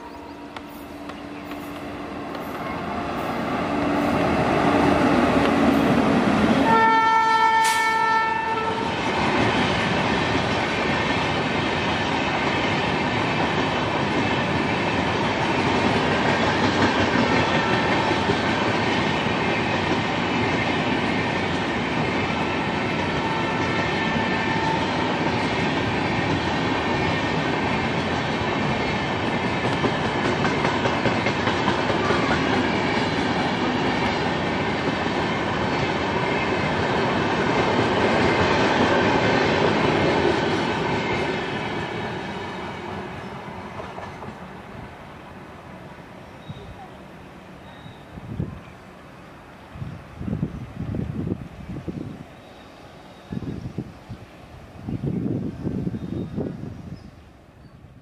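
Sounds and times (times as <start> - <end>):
wheels rolling on rail: 0.0 - 57.8
train passing at speed: 0.0 - 58.0
locomotive horn: 6.6 - 9.0, 22.4 - 25.2.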